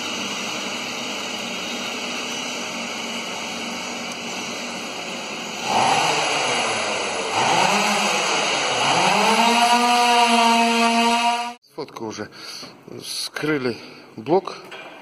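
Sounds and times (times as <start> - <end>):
motor revving: 0.0 - 11.6.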